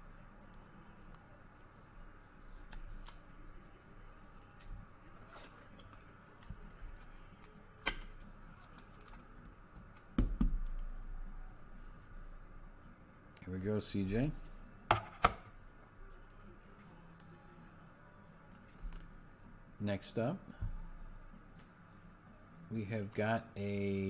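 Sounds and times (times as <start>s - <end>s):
cards and sleeves handled: 2.2s - 10.1s.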